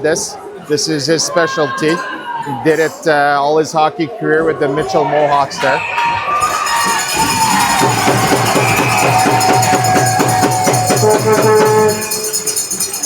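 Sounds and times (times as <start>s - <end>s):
fast beat music over pa: 6.8s - 13.0s.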